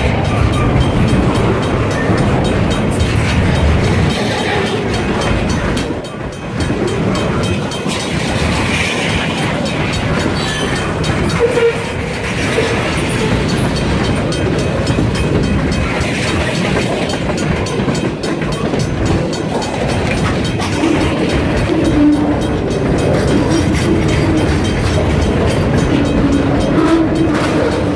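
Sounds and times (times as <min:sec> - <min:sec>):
freight train rumbling: 0:00.0 - 0:27.9
wheels clicking over rail joints: 0:00.0 - 0:27.9.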